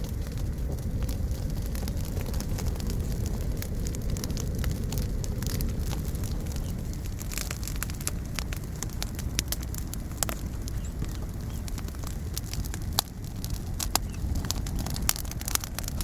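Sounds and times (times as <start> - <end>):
campfire crackling and popping: 0.0 - 16.0
low rumble of flame: 0.0 - 16.0.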